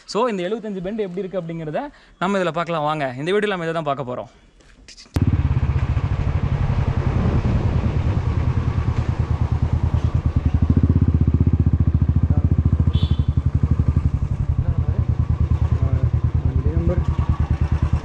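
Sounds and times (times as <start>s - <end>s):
motorcycle engine thumping: 5.2s - 18.0s.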